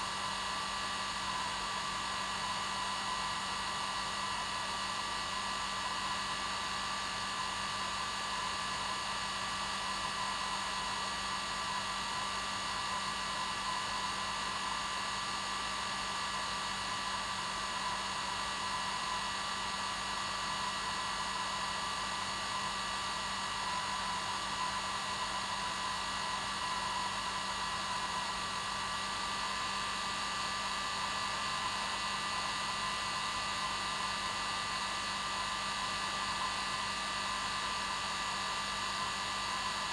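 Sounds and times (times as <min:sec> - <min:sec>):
hair dryer running: 0:16.3 - 0:39.9.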